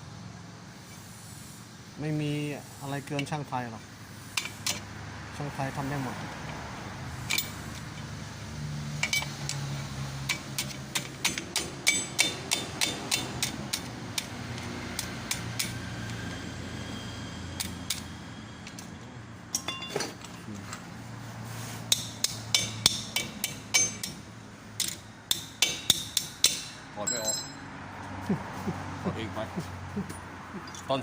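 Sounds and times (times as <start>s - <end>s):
hammer striking metal: 10.3s - 13.9s, 19.5s - 20.2s, 21.9s - 24.2s, 24.8s - 27.7s.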